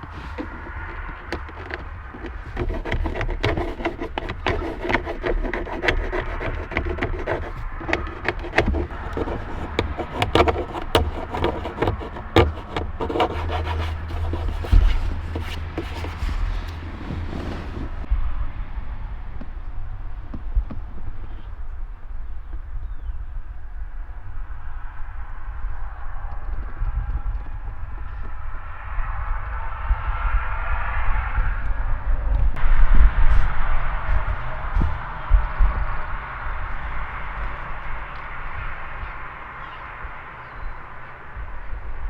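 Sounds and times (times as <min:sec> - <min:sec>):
plastic trim rubbing and clicking: 0:00.0 - 0:18.1.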